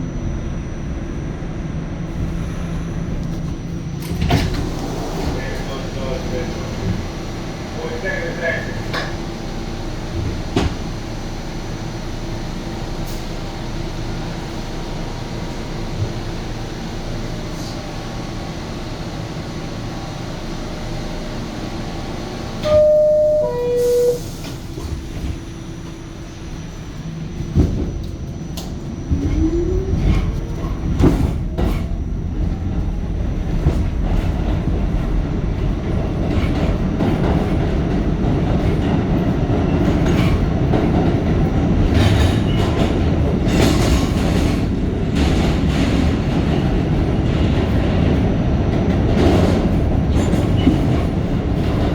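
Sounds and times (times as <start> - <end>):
train motor whine: 19.7 - 34.2
two-note door chime: 22.6 - 24.2
train wheel clatter: 27.0 - 51.9.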